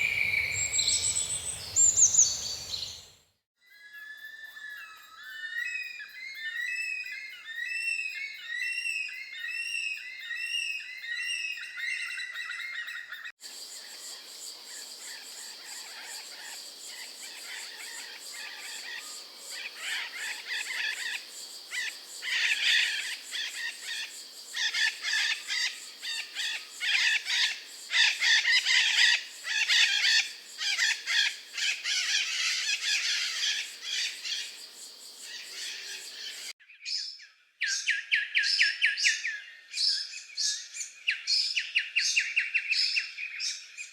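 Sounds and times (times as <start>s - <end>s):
chorus of many birds: 0.0s - 3.1s, 4.8s - 43.9s
bird quick rising chirps: 0.0s - 3.2s.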